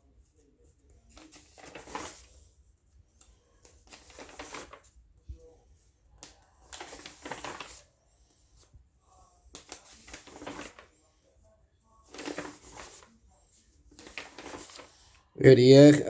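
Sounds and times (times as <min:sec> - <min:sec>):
paper pages rustling: 0:00.8 - 0:02.4, 0:03.2 - 0:05.0, 0:06.2 - 0:07.9, 0:09.5 - 0:10.9, 0:12.0 - 0:15.1.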